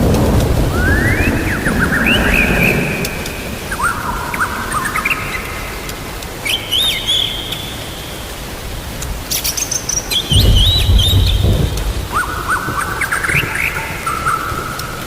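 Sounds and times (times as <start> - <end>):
low thunder rumble: 0.0 - 4.8, 10.3 - 14.7
rain hissing: 0.0 - 15.0
bird singing whistled phrases: 0.7 - 3.1, 6.4 - 8.2, 9.4 - 14.4
sharp crack: 10.3 - 14.4.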